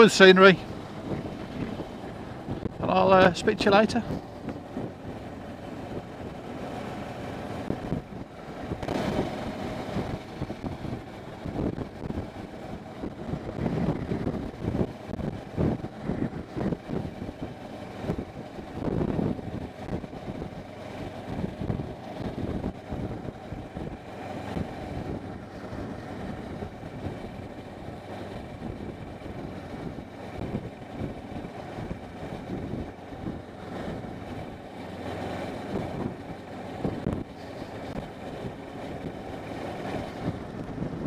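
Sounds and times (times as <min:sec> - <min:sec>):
rushing wind noise: 0:00.0 - 0:41.0.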